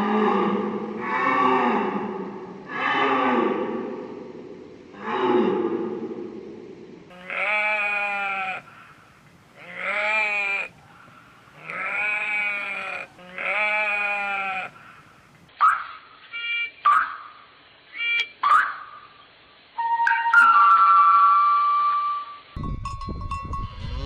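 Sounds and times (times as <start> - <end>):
sheep bleating: 7.1 - 8.8, 9.6 - 10.7, 11.6 - 14.8, 23.8 - 24.0.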